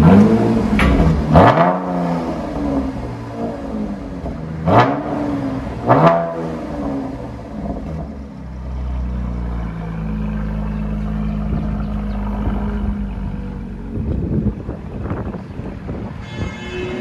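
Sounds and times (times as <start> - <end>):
car engine revving and idling: 1.4 - 14.4.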